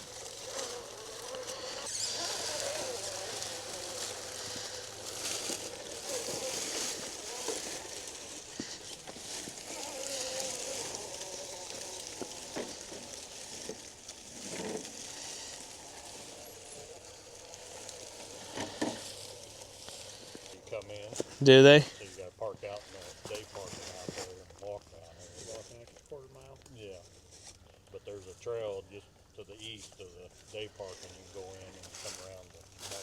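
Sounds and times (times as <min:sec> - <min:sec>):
small electric motor whining: 0:00.0 - 0:22.1.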